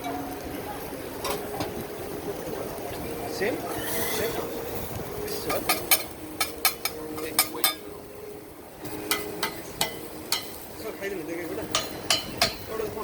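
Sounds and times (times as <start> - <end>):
metal spatulas clinking on griddle: 5.5 - 7.9, 8.9 - 10.6, 11.7 - 12.7.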